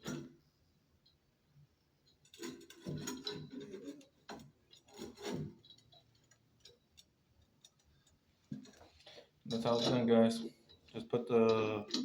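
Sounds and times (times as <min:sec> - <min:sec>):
metal parts rubbing and scraping: 0:09.5 - 0:10.4.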